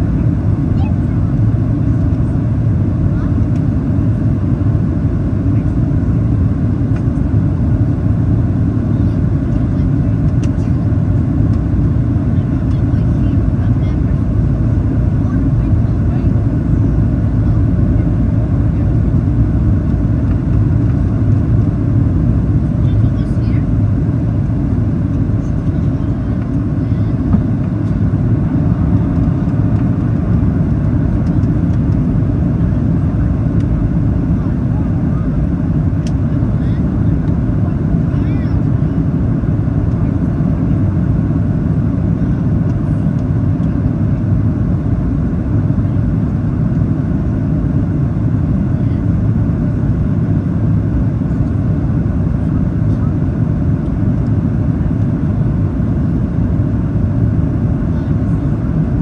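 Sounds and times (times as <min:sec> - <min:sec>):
airflow along aircraft fuselage: 0:00.0 - 0:59.0
airplane cabin engine rumble: 0:00.0 - 0:59.0.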